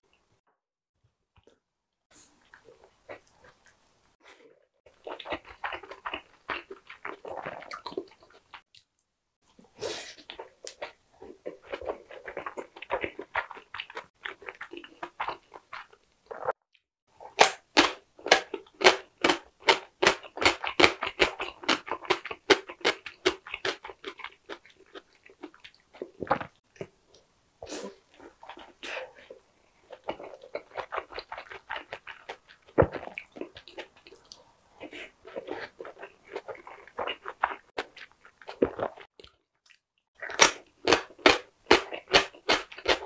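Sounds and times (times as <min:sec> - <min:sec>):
chewing dumpling: 0:02.2 - 0:43.0
crisp crunching of pickled radish: 0:29.8 - 0:43.0.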